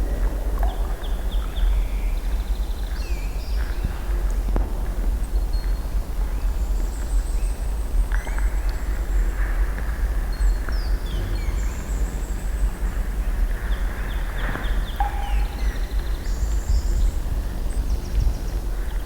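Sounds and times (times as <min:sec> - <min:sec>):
faint bird chirps: 0:14.9 - 0:16.3.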